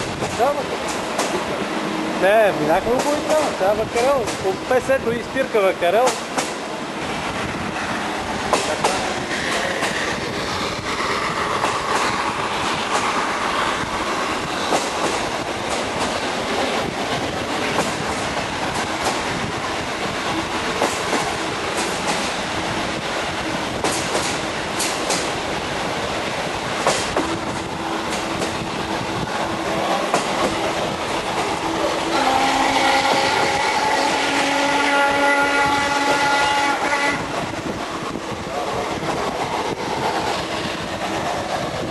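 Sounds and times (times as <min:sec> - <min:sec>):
steam train rumbling: 0:00.0 - 0:41.9
wheels clacking over rail joints: 0:02.7 - 0:04.5, 0:08.4 - 0:10.4, 0:11.4 - 0:22.5, 0:23.5 - 0:26.1, 0:26.7 - 0:33.6.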